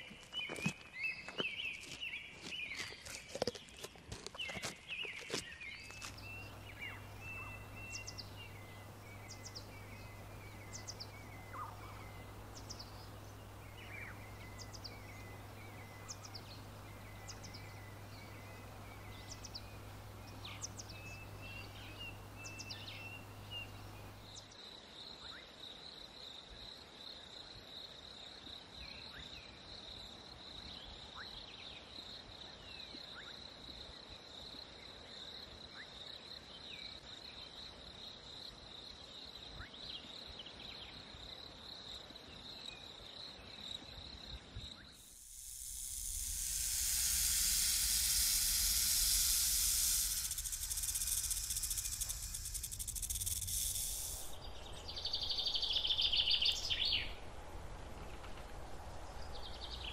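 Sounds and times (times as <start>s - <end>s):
birds chirping: 0.0s - 24.4s, 45.0s - 57.3s
insects trilling: 5.8s - 24.5s, 44.0s - 57.2s
low hum: 5.9s - 24.4s, 45.0s - 59.9s
soft hiss: 6.0s - 24.4s, 45.0s - 59.9s.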